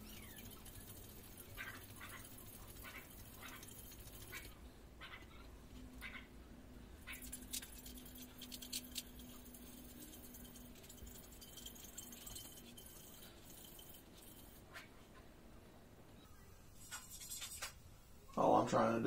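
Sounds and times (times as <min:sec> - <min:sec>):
pad scrubbing metal tumbler: 0:00.0 - 0:05.2, 0:07.0 - 0:14.9
low steady hum: 0:00.0 - 0:19.0.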